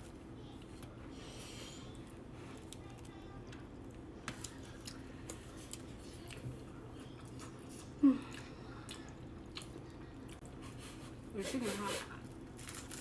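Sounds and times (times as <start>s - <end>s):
chewing: 2.0s - 10.9s.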